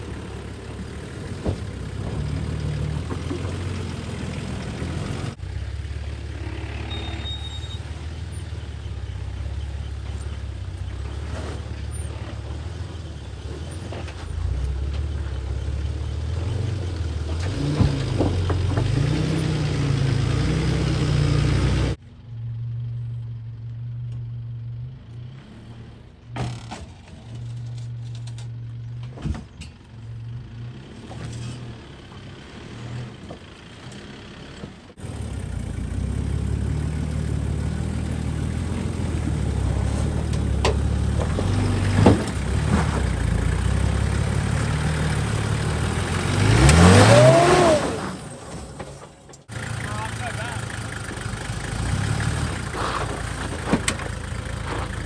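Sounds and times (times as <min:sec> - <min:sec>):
off-road engines working slowly: 0:00.0 - 0:55.0
engine revving up: 0:16.2 - 0:22.0, 0:35.0 - 0:50.8.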